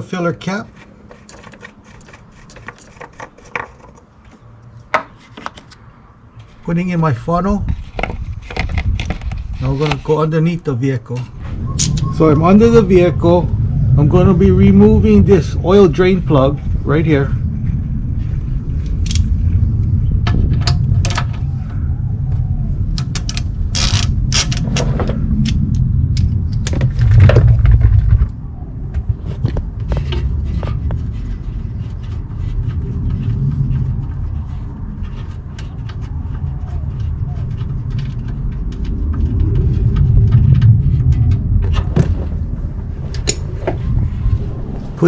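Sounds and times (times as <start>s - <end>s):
low rumble: 6.1s - 45.0s
ratchet clicking: 23.0s - 24.9s.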